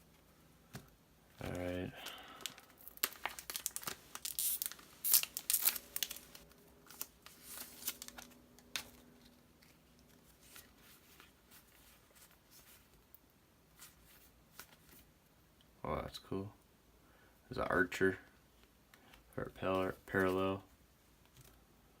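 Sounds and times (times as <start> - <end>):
cards rustling: 1.4 - 13.0
foil wrapper crinkling and tearing: 1.5 - 9.0.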